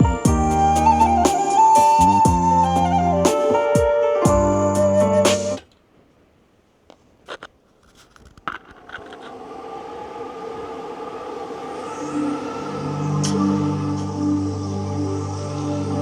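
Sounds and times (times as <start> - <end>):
music from a speaker: 0.0 - 5.6
soft ambient music: 0.0 - 5.6, 9.3 - 16.0.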